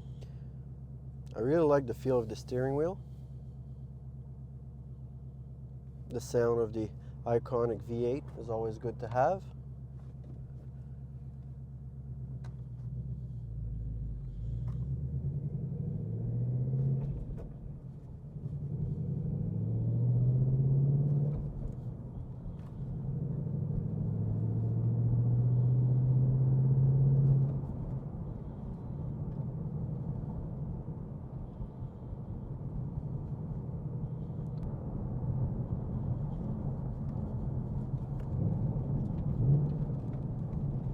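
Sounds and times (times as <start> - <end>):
car engine accelerating: 10.0 - 40.9.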